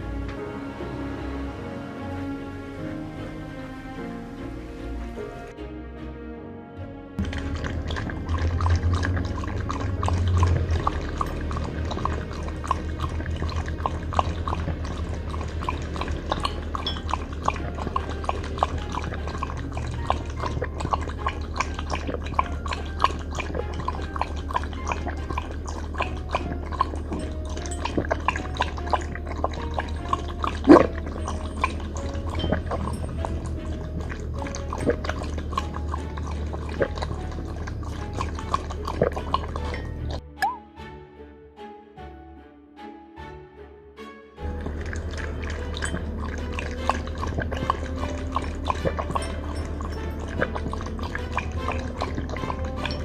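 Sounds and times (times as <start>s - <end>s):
dog lapping water: 7.2s - 40.2s, 44.4s - 53.0s.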